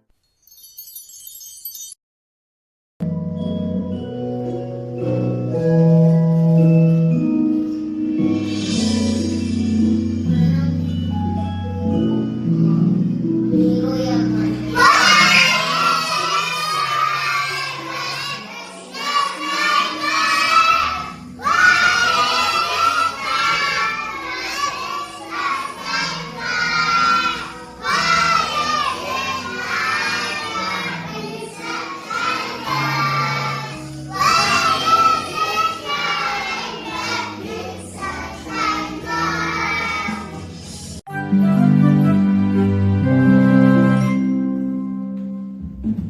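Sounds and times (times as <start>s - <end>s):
musical accompaniment: 3.0s - 46.0s
children singing: 13.7s - 40.6s.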